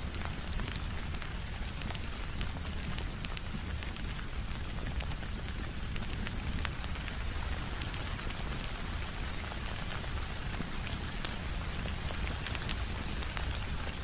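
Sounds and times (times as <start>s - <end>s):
sharp ticks and pops: 0.0s - 8.7s, 9.6s - 14.0s
rain on window glass: 0.0s - 14.0s.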